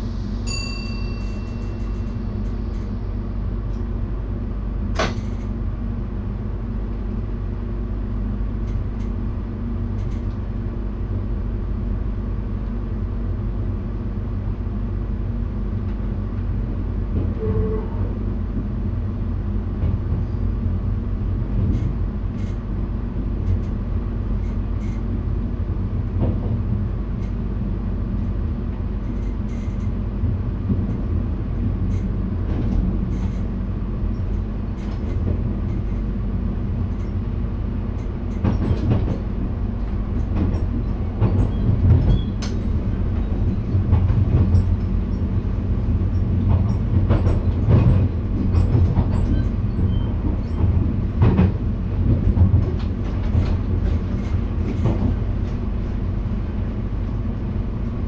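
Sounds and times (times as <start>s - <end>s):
train rumble with low hum: 0.0s - 58.0s
short tone: 0.4s - 2.3s.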